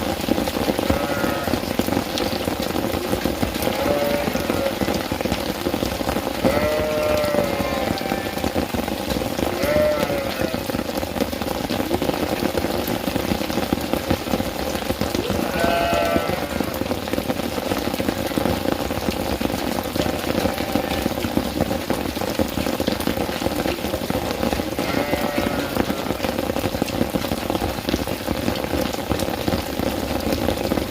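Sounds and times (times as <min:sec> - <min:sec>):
rain falling: 0:00.0 - 0:30.9
goat bleating: 0:00.9 - 0:01.6, 0:03.7 - 0:04.8, 0:06.4 - 0:08.4, 0:09.5 - 0:10.7, 0:15.2 - 0:16.8, 0:24.8 - 0:26.2.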